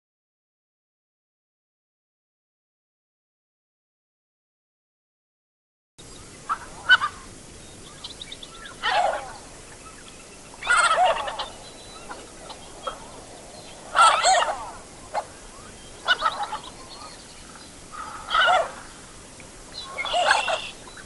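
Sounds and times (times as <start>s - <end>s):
faint hiss: 6.0s - 21.0s
ducks calling: 6.3s - 21.0s.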